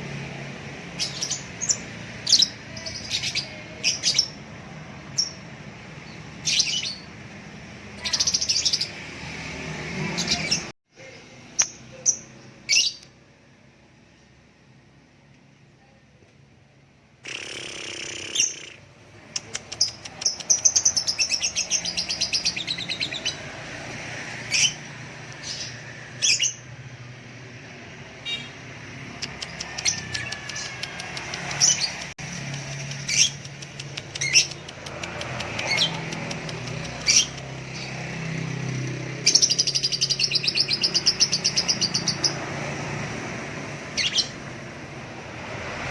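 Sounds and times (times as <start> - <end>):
songbirds trilling and chirping: 17.3 - 27.6, 28.2 - 45.2.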